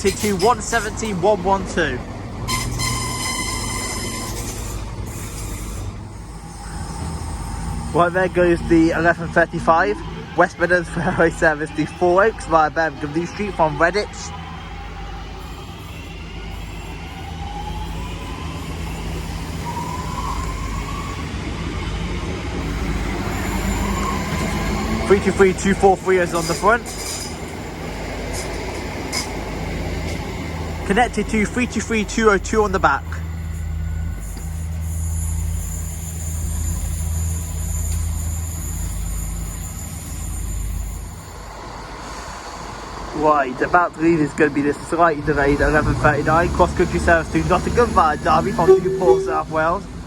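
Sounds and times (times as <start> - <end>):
low train rumble: 0.0 - 50.0
electric train motors whining: 13.2 - 43.2
thin high whine: 48.0 - 50.0.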